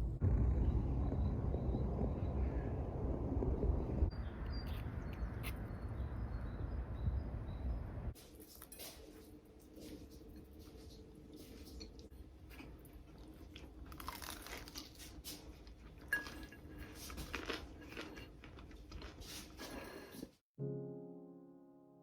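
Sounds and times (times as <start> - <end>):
low steady hum: 0.0 - 8.2
soft crunching and clicking: 8.3 - 20.1.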